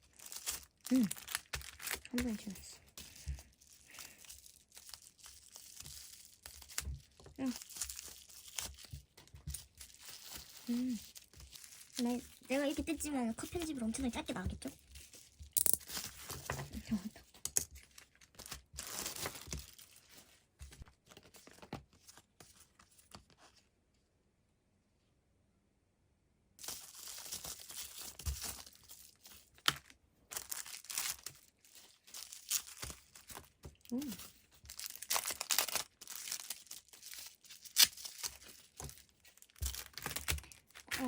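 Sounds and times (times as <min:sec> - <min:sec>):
packaging tearing and crinkling: 0:00.0 - 0:13.8, 0:17.8 - 0:20.2, 0:26.6 - 0:41.0.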